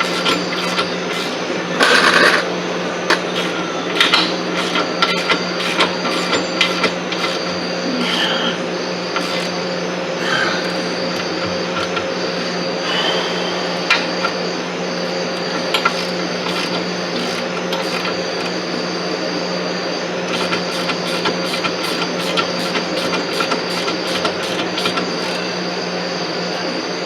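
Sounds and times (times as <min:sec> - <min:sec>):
hand tools clicking on metal: 0:00.0 - 0:02.4, 0:03.1 - 0:08.4, 0:09.1 - 0:09.6, 0:10.2 - 0:12.6, 0:15.0 - 0:18.6, 0:20.3 - 0:25.5
steady electrical hum: 0:00.0 - 0:27.0.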